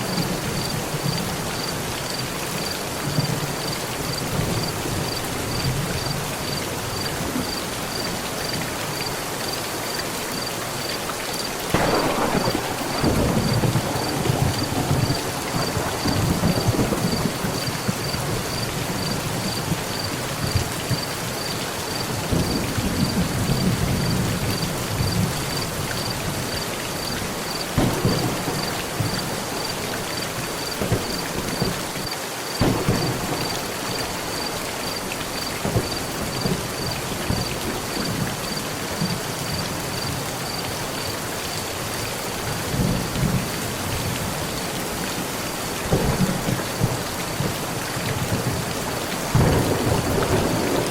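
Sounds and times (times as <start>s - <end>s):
heavy rain on a metal roof: 0.0s - 50.9s
thunder: 11.7s - 21.1s, 22.2s - 26.6s, 27.8s - 39.2s, 45.9s - 50.9s.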